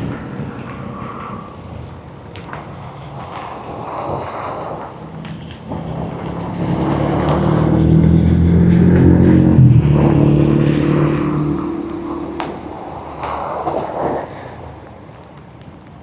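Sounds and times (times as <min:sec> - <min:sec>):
storm wind and rain: 0:00.0 - 0:16.0
passing vehicle engine hum: 0:04.0 - 0:14.9.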